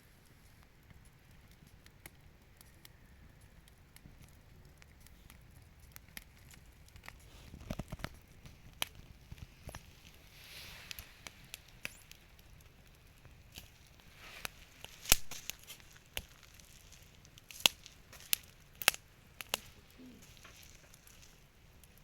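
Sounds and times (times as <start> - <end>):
campfire crackling: 0.0 - 22.0
sharp pops from fire: 0.2 - 22.0
short hiss: 10.2 - 12.2.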